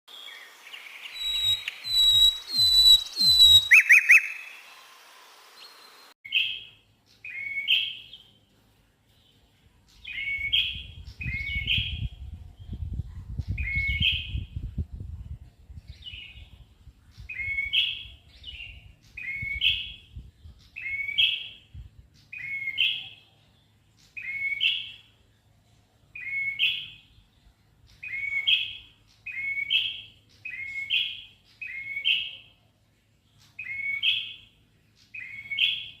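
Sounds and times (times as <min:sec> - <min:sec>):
songbird sharp calls: 0:00.1 - 0:04.7.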